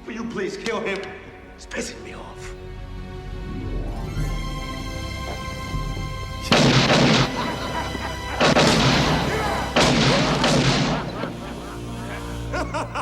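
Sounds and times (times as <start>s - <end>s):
orchestral score: 0.0s - 13.0s
loud gunshots: 6.5s - 11.8s.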